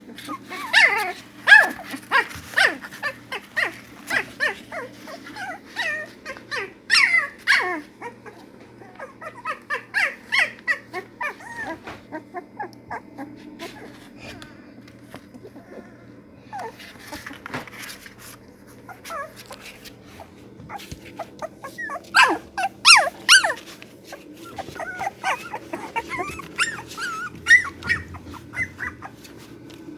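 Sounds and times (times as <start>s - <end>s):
dogs whining and yelping: 0.0s - 13.9s, 20.6s - 29.8s.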